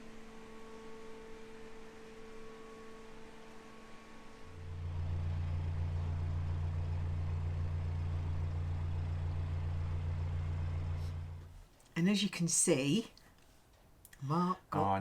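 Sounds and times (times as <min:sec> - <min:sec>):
low mechanical drone: 0:01.2 - 0:11.5.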